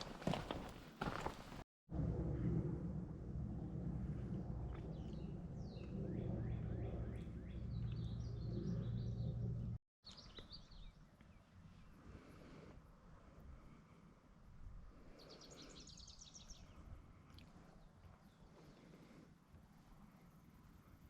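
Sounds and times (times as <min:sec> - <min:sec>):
loud low rumbling noise: 0:01.9 - 0:09.8
small birds chirping: 0:04.7 - 0:11.9, 0:15.1 - 0:19.2.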